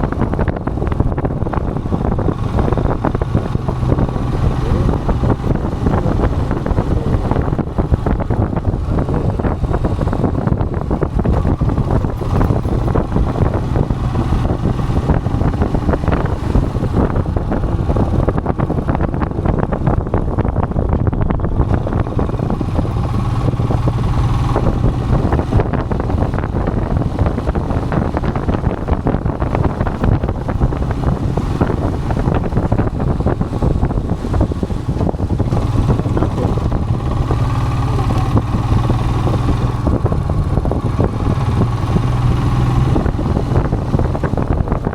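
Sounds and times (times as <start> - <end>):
motorcycle engine running: 0.0 - 44.9
wind rushing over microphone: 0.0 - 44.9.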